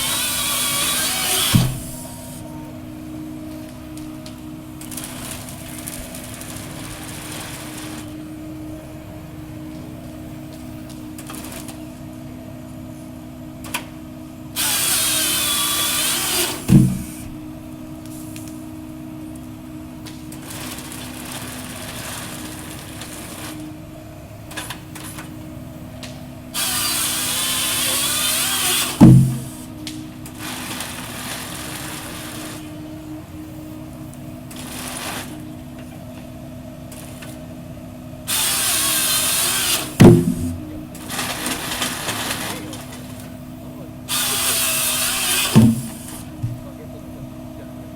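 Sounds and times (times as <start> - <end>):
chainsaw whining through log: 0.0 - 2.6, 4.8 - 8.2, 14.5 - 17.5, 20.3 - 23.8, 26.5 - 32.8, 34.1 - 35.8, 38.2 - 43.4, 44.0 - 46.8
harvester engine hum: 0.0 - 47.9
heavy log thump: 0.4 - 2.3, 16.1 - 17.5, 28.8 - 29.7, 39.7 - 41.1, 45.2 - 46.7.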